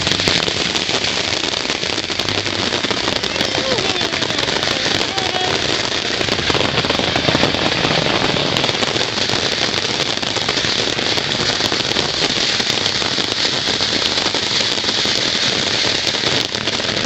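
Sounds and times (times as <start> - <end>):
ground firework crackling hiss: 0.0 - 17.0.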